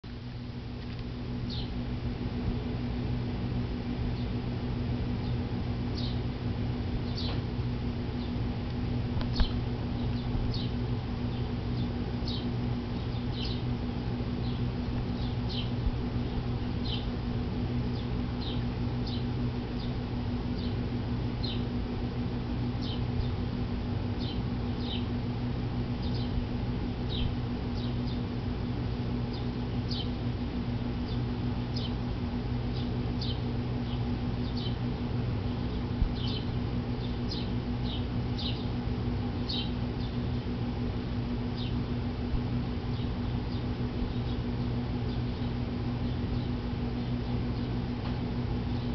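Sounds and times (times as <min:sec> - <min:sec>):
steady low hum: 0:00.0 - 0:48.9
small birds chirping: 0:01.4 - 0:01.8, 0:05.2 - 0:06.3, 0:07.0 - 0:07.5, 0:09.2 - 0:13.8, 0:14.4 - 0:17.2, 0:17.9 - 0:21.7, 0:22.8 - 0:23.5, 0:24.2 - 0:25.2, 0:26.0 - 0:26.4, 0:27.1 - 0:28.3, 0:29.3 - 0:30.2, 0:30.8 - 0:32.0, 0:32.7 - 0:40.4, 0:41.5 - 0:41.9, 0:42.8 - 0:47.8, 0:48.6 - 0:48.9.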